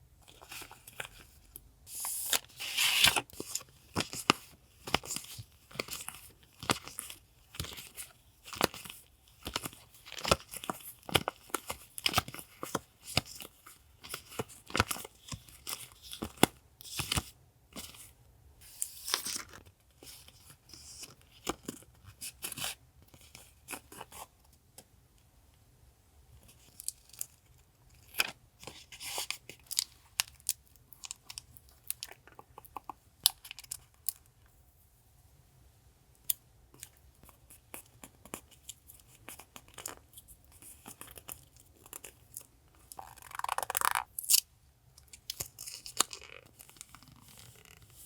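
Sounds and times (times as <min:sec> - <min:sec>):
packaging crinkling and tearing: 0:40.6 - 0:44.4, 0:45.2 - 0:48.0.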